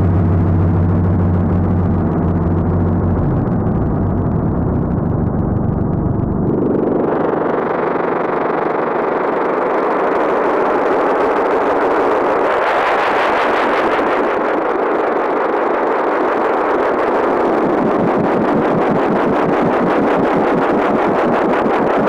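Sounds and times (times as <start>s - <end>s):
drum synthesizer rumbling texture: 0.0s - 8.8s.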